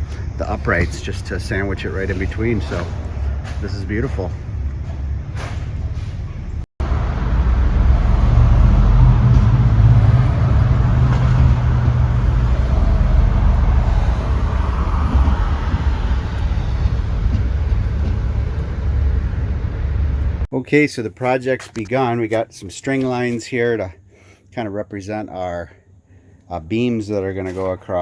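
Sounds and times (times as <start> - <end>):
vehicle engine and road noise: 0.0 - 20.5.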